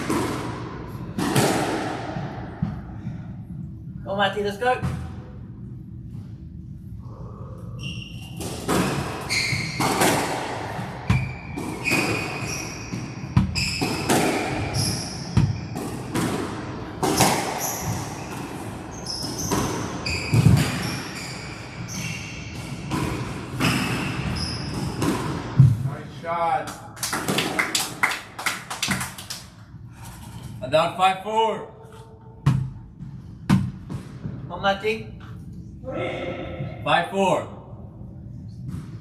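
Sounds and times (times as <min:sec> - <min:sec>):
squash ball cracking off walls: 0:00.0 - 0:02.2, 0:08.4 - 0:12.4, 0:13.0 - 0:18.0
shoes squeaking on court floor: 0:07.8 - 0:10.2, 0:11.0 - 0:16.1, 0:17.2 - 0:25.3.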